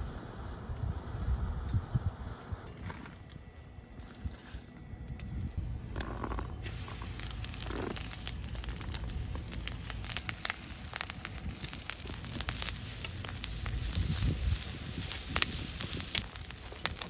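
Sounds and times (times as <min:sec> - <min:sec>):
low rumble: 0:05.0 - 0:17.0
campfire crackling and popping: 0:05.2 - 0:17.0.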